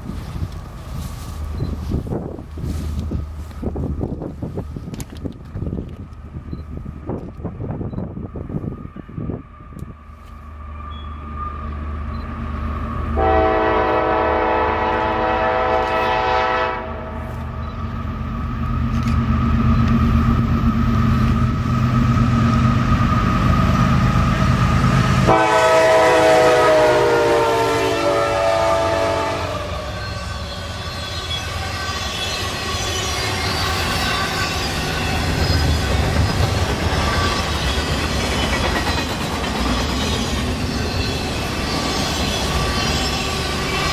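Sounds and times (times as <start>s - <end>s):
diesel locomotive engine rumble: 0.0s - 43.9s
locomotive air horn blasts: 13.2s - 17.4s, 25.2s - 30.4s
wheels clattering on rail: 32.2s - 43.9s.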